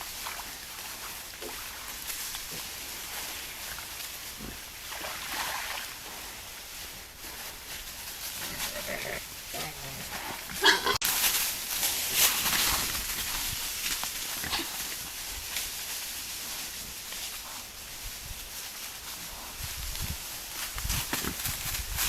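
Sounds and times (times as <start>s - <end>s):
rustling: 0.0s - 22.0s
wild boar grunts and squeal: 8.4s - 11.0s, 14.3s - 15.0s.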